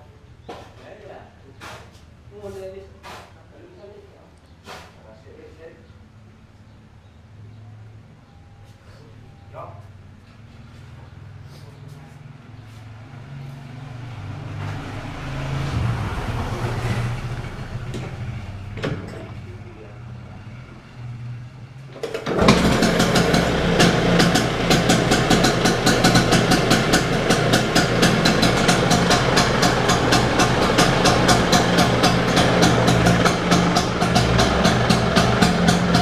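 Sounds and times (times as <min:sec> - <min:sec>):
scooter two-stroke engine running: 0:22.0 - 0:36.0.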